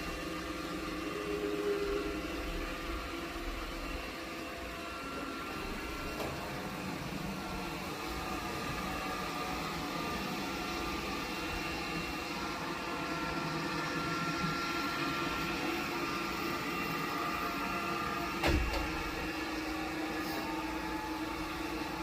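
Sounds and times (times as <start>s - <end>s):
robot vacuum station humming: 0.0s - 22.0s
thump: 18.4s - 19.0s.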